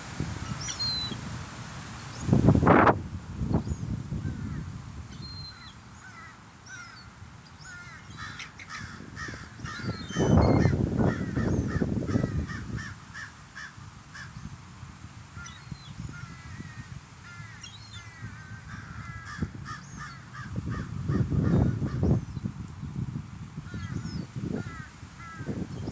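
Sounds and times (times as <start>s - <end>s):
seagulls squawking: 7.7s - 13.0s.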